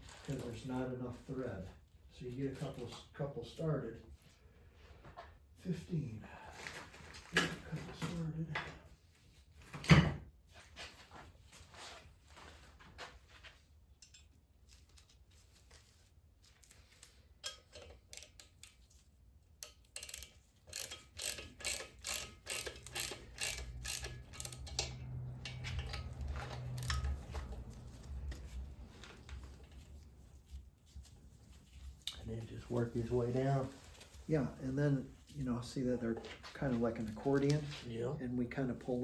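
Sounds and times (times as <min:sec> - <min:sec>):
ratchet wrench clicking: 0:19.6 - 0:28.4.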